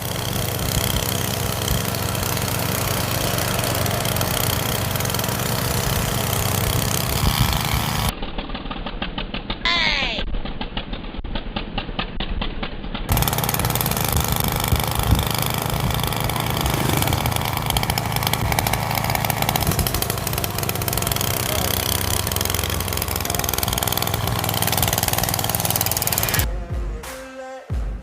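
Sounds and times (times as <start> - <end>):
moped engine exhaust buzz: 0.0 - 8.1, 13.1 - 26.5.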